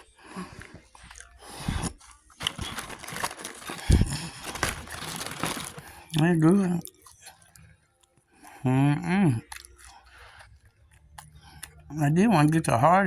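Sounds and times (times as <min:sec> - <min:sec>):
chewing food: 0:00.0 - 0:12.8
crackly rustling: 0:01.6 - 0:06.2.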